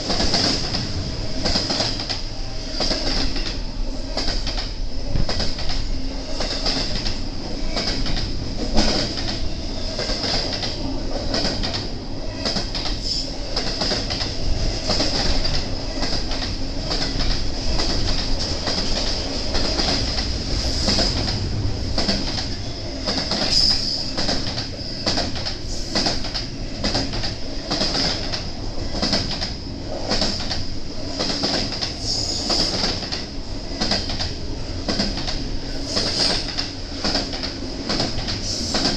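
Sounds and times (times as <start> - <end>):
train wheels clacking over rail joints: 0.0 - 38.9.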